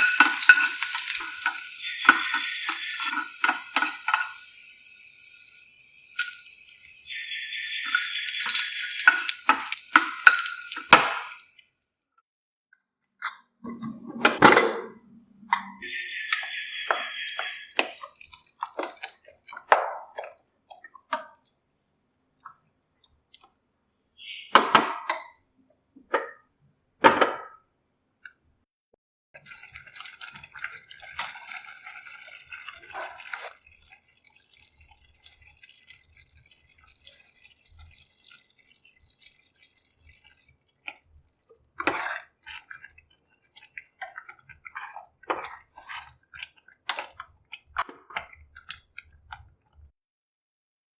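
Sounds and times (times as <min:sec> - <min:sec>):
dishes and utensils clinking: 0:00.0 - 0:04.6, 0:07.6 - 0:11.5
liquid dripping: 0:00.0 - 0:12.0, 0:15.5 - 0:21.6, 0:29.4 - 0:49.9.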